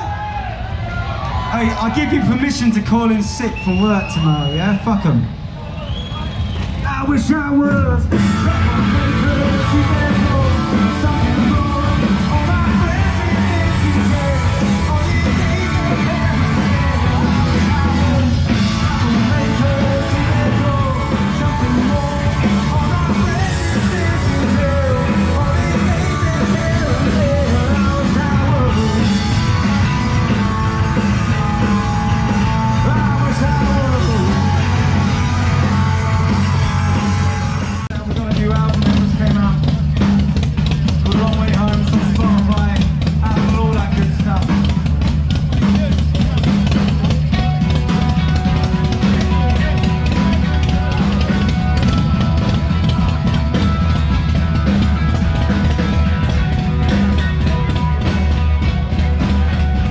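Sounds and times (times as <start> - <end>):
singer yelling: 0.0 - 38.8
punk rock band playing: 0.0 - 59.9.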